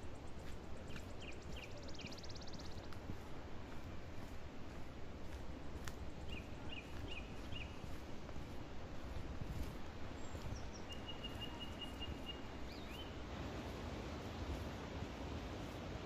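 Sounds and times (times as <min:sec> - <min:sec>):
low background noise: 0:00.0 - 0:16.0
birds chirping: 0:00.3 - 0:03.2, 0:06.1 - 0:08.6, 0:10.1 - 0:13.2.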